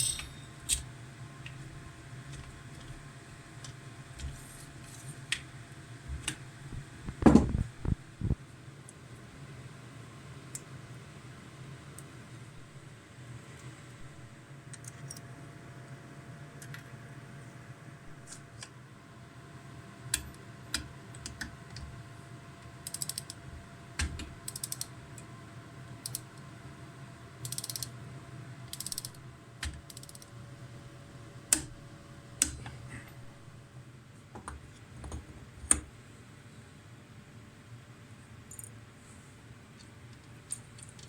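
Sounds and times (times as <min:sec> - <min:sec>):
steady low hum: 0:00.0 - 0:08.5, 0:17.4 - 0:36.2.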